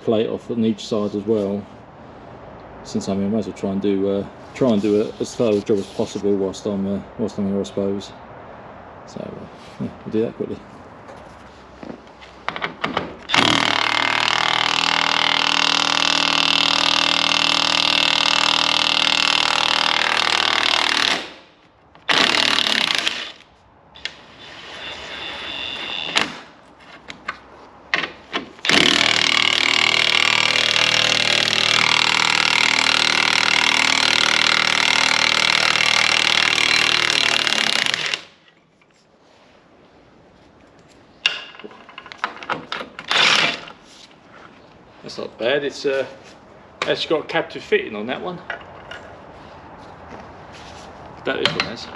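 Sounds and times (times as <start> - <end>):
impact wrench hammering: 12.5 - 21.4, 28.0 - 38.3.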